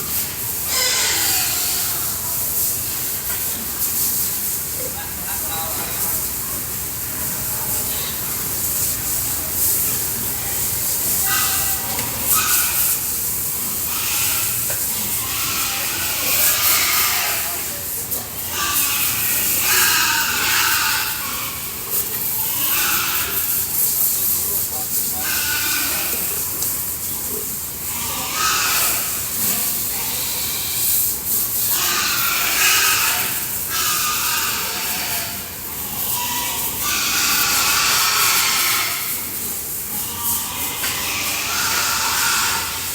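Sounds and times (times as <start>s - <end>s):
hose spraying water: 0.0s - 42.9s.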